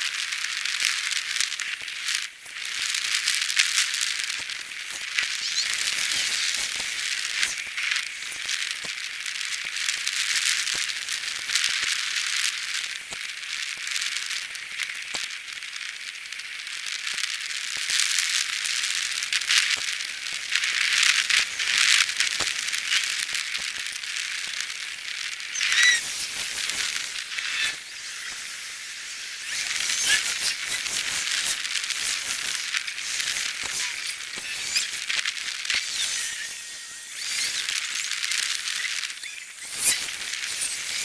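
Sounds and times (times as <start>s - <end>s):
short squeak: 5.3s - 6.8s, 25.5s - 41.0s.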